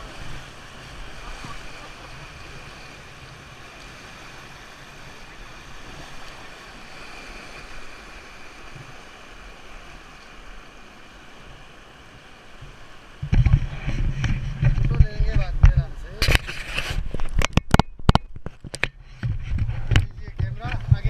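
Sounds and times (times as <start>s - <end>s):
river rushing over rapids: 0.0s - 13.9s.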